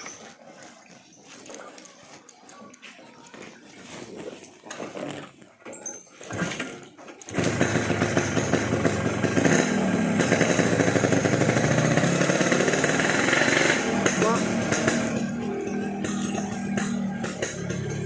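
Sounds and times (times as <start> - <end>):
two-stroke motorcycle engine running: 7.3 - 18.0.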